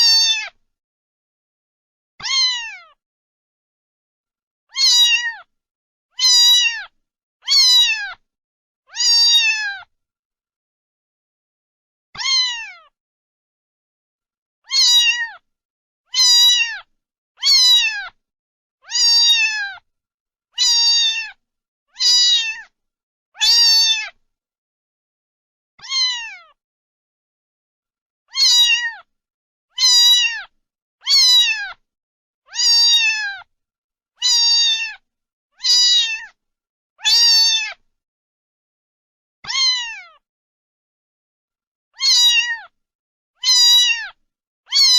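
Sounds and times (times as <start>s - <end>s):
cat meowing: 0.0s - 0.6s, 2.2s - 3.0s, 4.7s - 5.5s, 6.2s - 8.2s, 8.9s - 9.9s, 12.2s - 13.0s, 14.6s - 15.4s, 16.1s - 18.2s, 18.8s - 19.8s, 20.6s - 21.4s, 22.0s - 22.7s, 23.4s - 24.2s, 25.8s - 26.6s, 28.3s - 29.1s, 29.7s - 31.8s, 32.5s - 33.5s, 34.2s - 35.0s, 35.6s - 36.4s, 37.0s - 37.8s, 39.4s - 40.2s, 42.0s - 42.8s, 43.4s - 44.9s.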